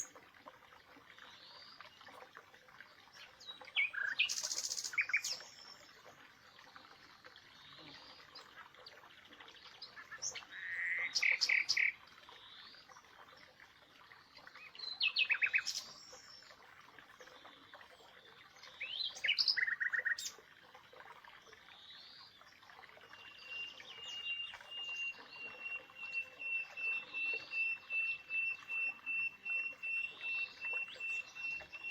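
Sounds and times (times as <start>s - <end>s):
birds chirping: 23.1s - 31.9s.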